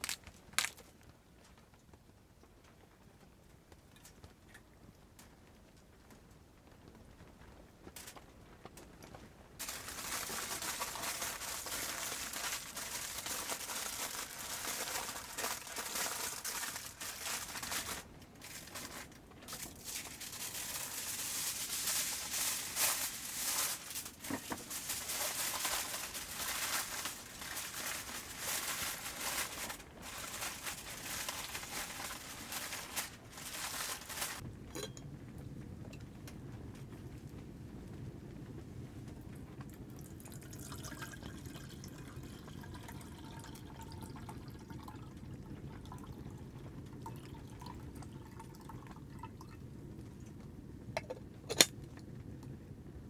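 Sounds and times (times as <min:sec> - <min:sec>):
material crinkling and rustling: 0:00.0 - 0:01.6, 0:07.9 - 0:34.9, 0:51.0 - 0:52.0.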